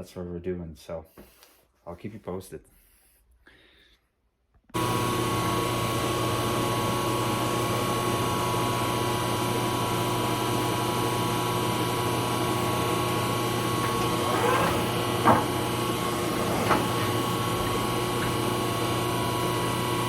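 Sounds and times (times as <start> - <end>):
lathe running with whine: 4.8 - 20.0.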